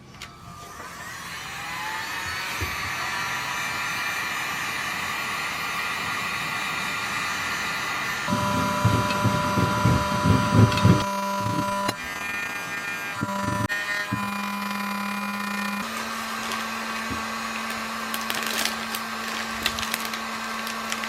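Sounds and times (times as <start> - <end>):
hot-air blower running: 0.0 - 21.0
low handling thumps: 8.3 - 11.9.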